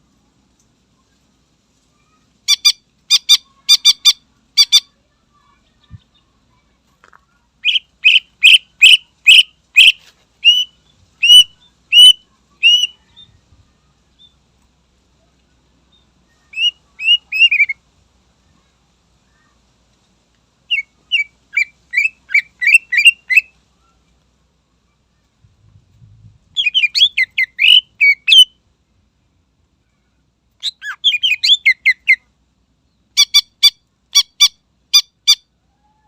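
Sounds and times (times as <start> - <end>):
bird singing whistled notes: 7.6 - 13.4, 15.9 - 17.8, 20.7 - 23.5, 26.5 - 28.6, 30.6 - 32.3.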